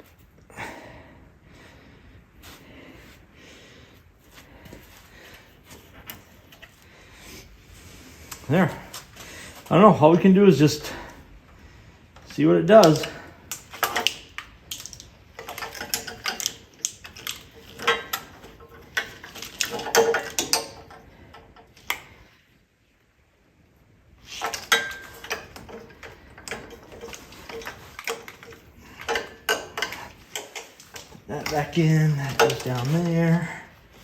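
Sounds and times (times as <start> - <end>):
metal parts knocking: 12.2 - 22.0, 24.3 - 33.5
ratcheting: 12.2 - 22.1, 24.3 - 33.5.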